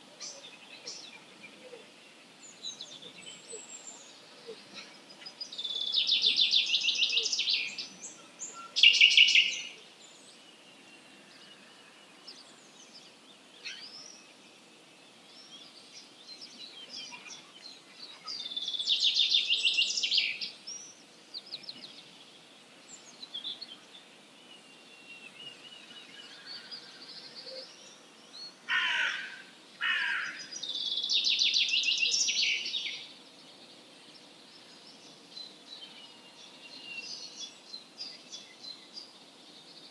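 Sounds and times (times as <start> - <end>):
faint birds singing: 0.0 - 39.9
harsh bird calls: 28.7 - 30.6.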